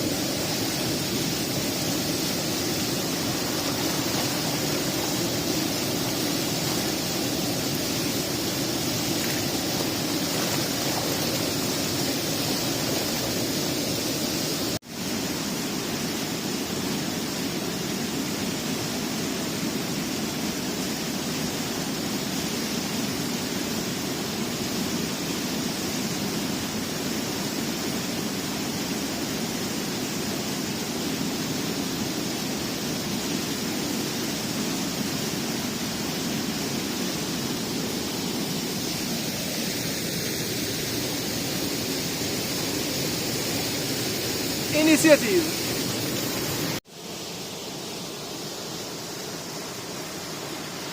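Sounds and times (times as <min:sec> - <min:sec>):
steady rushing noise: 0:00.0 - 0:16.4.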